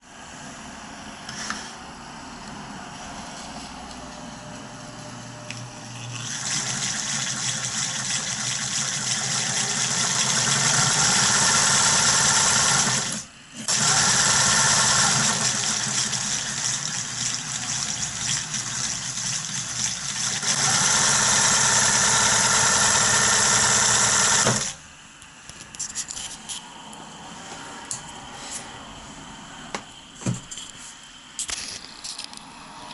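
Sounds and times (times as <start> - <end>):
overlock sewing machine running: 6.2 - 24.8.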